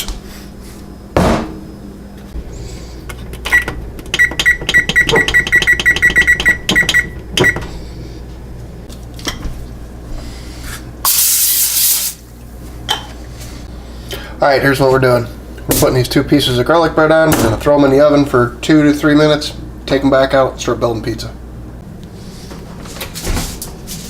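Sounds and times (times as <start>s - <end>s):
oven keypad beeps: 3.4s - 7.7s
short hiss: 11.1s - 12.2s.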